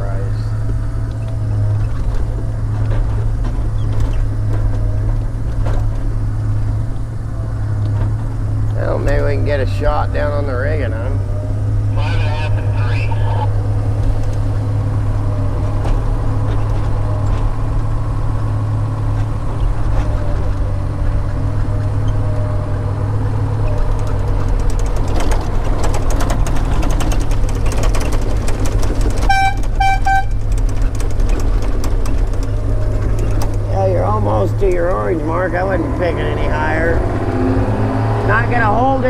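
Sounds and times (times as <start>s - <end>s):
logging machine engine droning: 0.0s - 39.0s
metal clanking and rattling: 23.7s - 33.7s
short high-pitched horn beeps: 29.2s - 30.4s.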